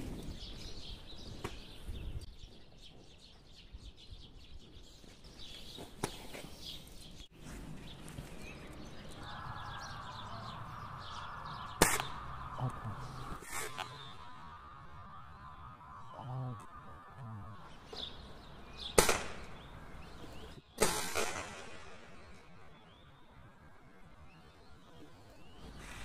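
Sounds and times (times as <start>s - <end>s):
small birds chirping: 0.0s - 21.4s, 22.0s - 26.0s
sharp crack: 11.4s - 14.4s, 18.8s - 22.6s.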